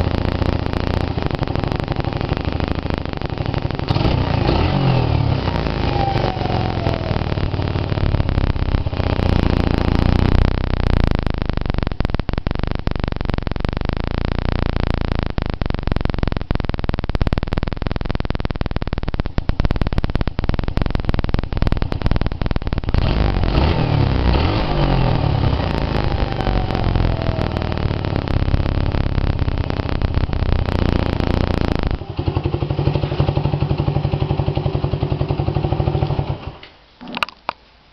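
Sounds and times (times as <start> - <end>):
motorcycle engine at raised revs: 0.0 - 13.1, 19.1 - 37.3.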